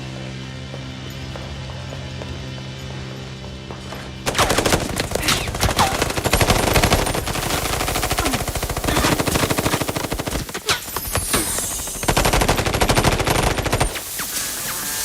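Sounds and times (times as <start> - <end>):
rapid gunfire: 4.2 - 15.0.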